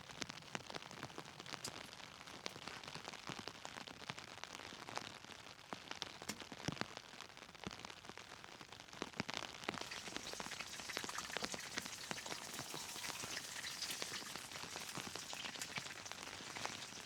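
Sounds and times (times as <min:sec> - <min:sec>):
heavy rain on a tent: 0:03.0 - 0:09.9.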